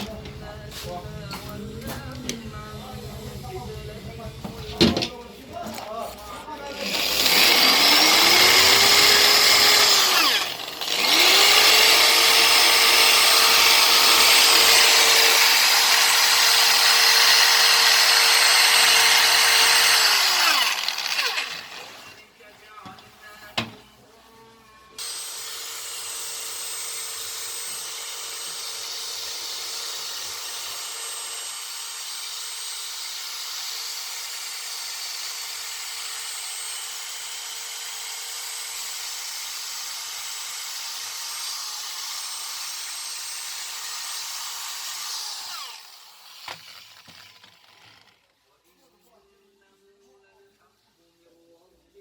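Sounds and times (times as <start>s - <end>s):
power tool grinding metal: 6.6s - 22.2s, 25.0s - 48.3s.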